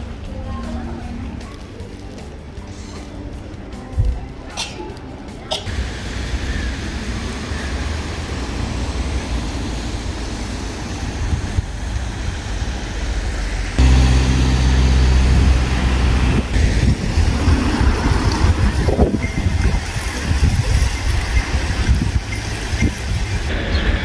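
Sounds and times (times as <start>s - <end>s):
low drone: 5.7s - 19.1s
car road and engine rumble: 5.7s - 24.0s.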